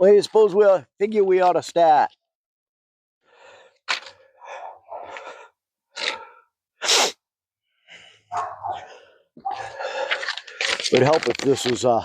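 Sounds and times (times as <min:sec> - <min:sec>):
rustling and handling noises: 0:09.6 - 0:12.0.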